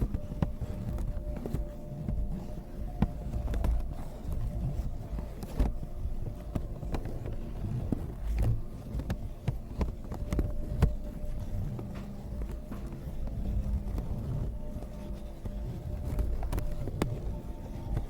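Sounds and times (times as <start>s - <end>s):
taps clicks and scratches on object: 0.0s - 18.0s.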